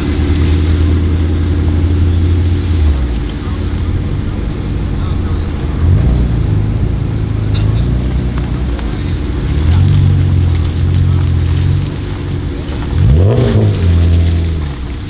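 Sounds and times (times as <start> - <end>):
car engine deep exhaust note: 0.0 - 15.0.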